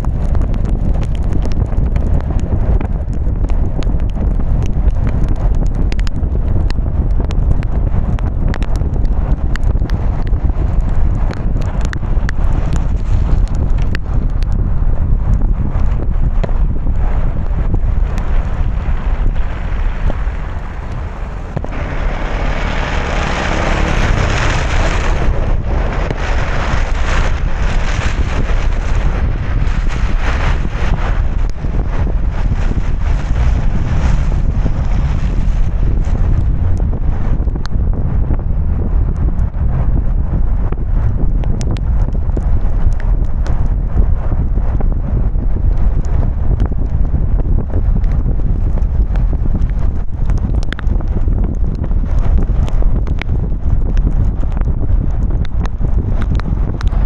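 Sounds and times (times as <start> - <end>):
raindrops ticking on car: 0.0 - 14.6, 15.4 - 34.9, 48.0 - 57.0
tyres and wind rumble: 0.0 - 57.0
car tyres hissing on wet road: 17.6 - 36.6.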